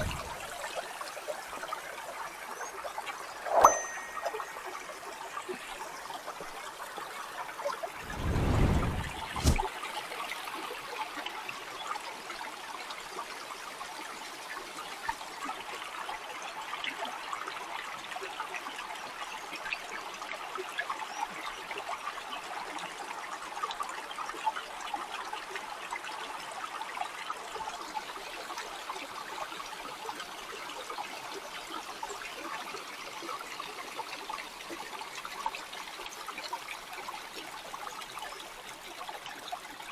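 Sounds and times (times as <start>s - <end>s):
stream trickling and babbling: 0.0s - 39.9s
brief low rumble: 8.0s - 9.6s.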